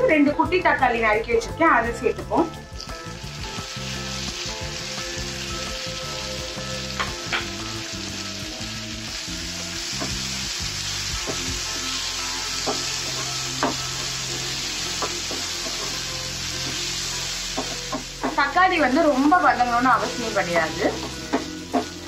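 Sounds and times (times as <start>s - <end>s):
vegetables sizzling in hot oil: 2.3s - 22.0s
wooden spatula knocking on pan: 12.6s - 13.8s, 17.5s - 18.4s, 21.0s - 22.0s.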